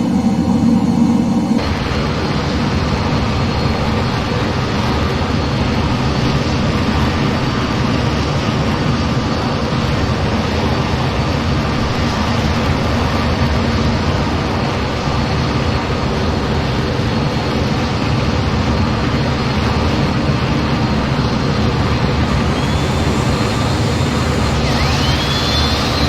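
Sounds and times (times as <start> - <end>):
jet engine roar: 0.0 - 26.0
faint high whine: 21.2 - 26.0.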